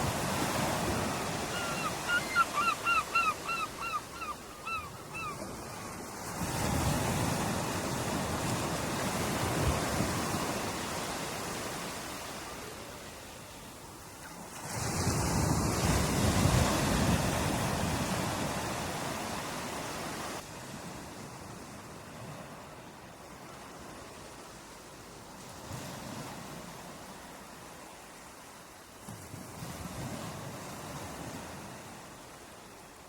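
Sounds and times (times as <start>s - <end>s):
ocean waves surging onto beach: 0.0s - 33.0s.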